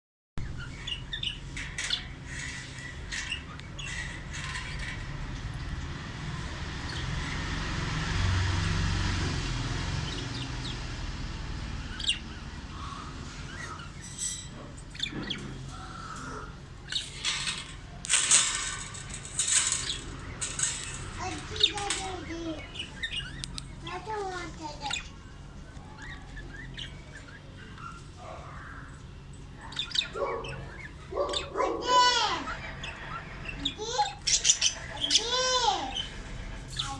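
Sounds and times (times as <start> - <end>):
budgerigar chirping: 29.6 - 31.8.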